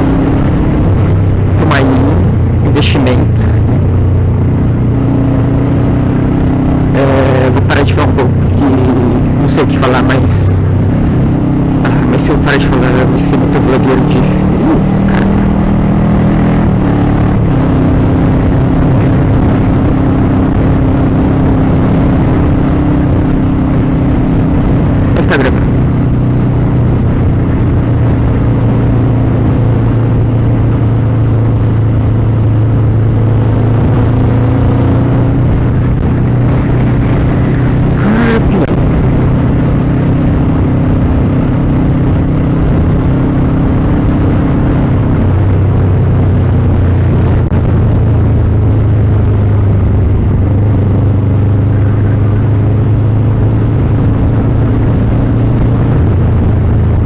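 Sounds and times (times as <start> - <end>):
motorcycle engine running: 0.0 - 57.0
rush of noise: 0.0 - 57.0.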